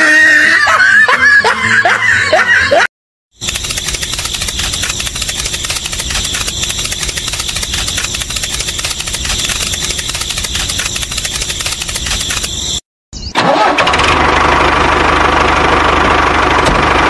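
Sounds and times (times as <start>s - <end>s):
tractor engine idling: 3.4s - 12.5s, 13.4s - 17.0s.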